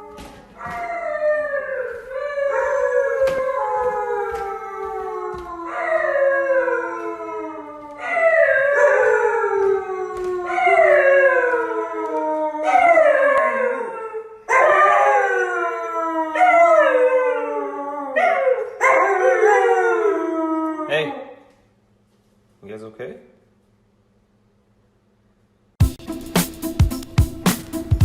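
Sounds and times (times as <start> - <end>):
dog howling: 0.0 - 21.4.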